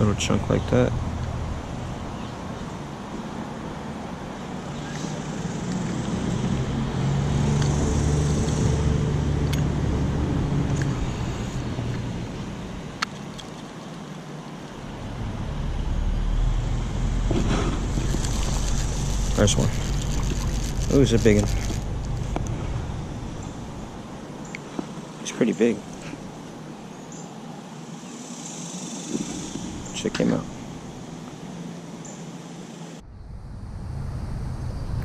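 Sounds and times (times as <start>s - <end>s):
vehicle engine passing: 4.4s - 12.8s, 14.8s - 24.4s
low rumble: 14.8s - 24.2s, 33.0s - 35.0s.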